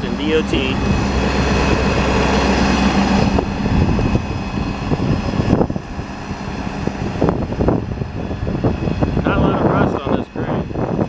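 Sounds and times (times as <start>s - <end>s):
diesel engine idling: 0.0s - 11.0s
rumbling and knocking: 0.0s - 11.0s.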